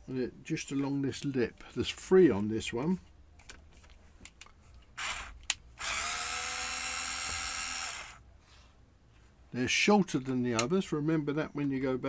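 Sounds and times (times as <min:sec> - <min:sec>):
electric screwdriver running: 0:05.0 - 0:08.2.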